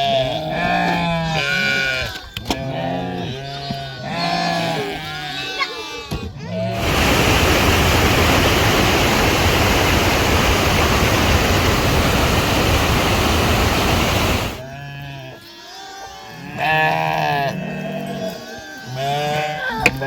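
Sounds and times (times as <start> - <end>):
rushing water: 6.8 - 14.6.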